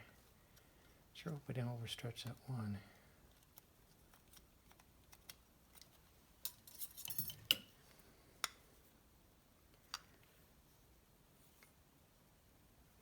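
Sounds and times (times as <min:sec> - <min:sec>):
metallic clicks and clinks: 0:06.4 - 0:07.7.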